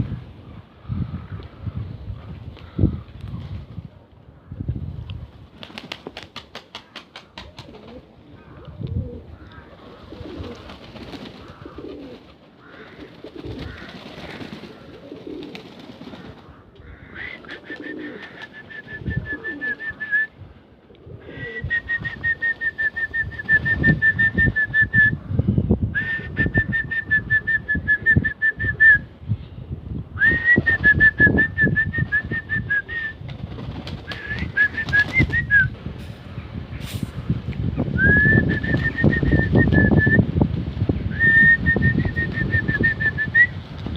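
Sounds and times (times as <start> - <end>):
wind buffeting microphone: 0.0 - 6.2, 7.3 - 12.3, 18.3 - 43.9
pigeons cooing: 6.7 - 20.0, 20.9 - 21.8.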